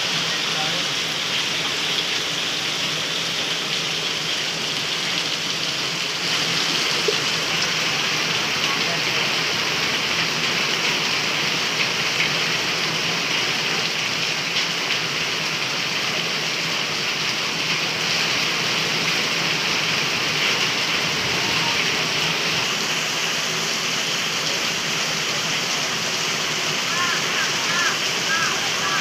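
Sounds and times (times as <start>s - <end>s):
fast-flowing floodwater: 0.0s - 29.0s
heavy rain: 0.0s - 29.0s.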